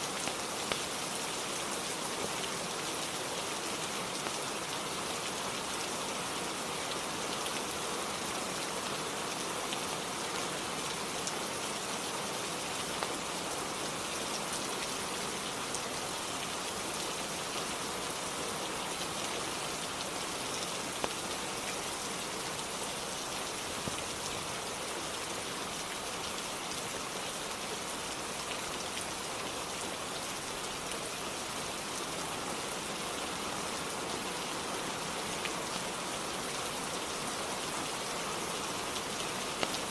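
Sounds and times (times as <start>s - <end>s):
rain on a roof: 0.0s - 39.9s
faint ticks: 39.6s - 39.8s.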